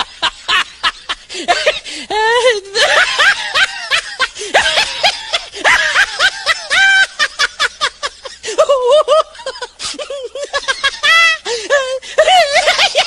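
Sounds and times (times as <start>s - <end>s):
high-pitched cackling laughter: 2.6s - 13.0s.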